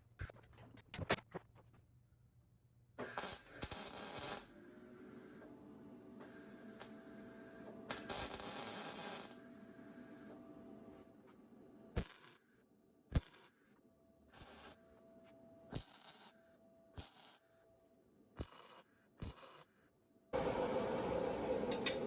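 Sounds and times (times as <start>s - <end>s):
harsh hissing metalworking noise: 20.4s - 22.0s
machine whine: 20.4s - 22.0s.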